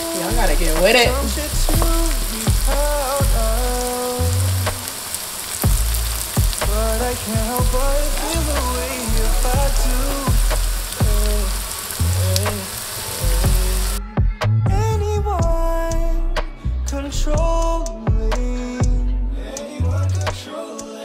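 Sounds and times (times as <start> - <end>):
mushrooms frying in oil: 0.0 - 14.0
music with deep bass hits: 0.3 - 3.9, 5.6 - 12.6, 13.3 - 20.4.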